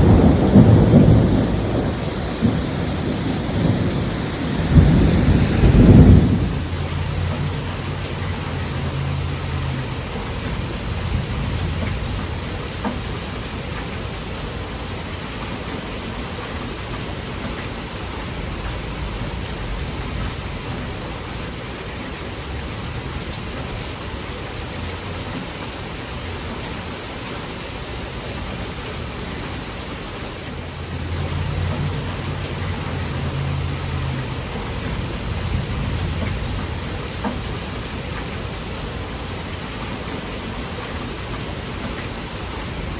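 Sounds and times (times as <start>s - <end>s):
thunder rumbling: 0.0s - 13.1s, 30.5s - 42.9s
heavy rain falling: 0.0s - 42.9s.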